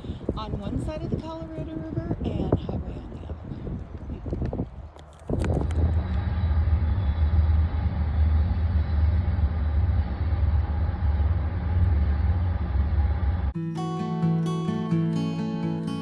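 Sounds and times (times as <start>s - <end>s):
train rumbling by: 5.8s - 13.6s
acoustic guitar music: 13.6s - 16.0s.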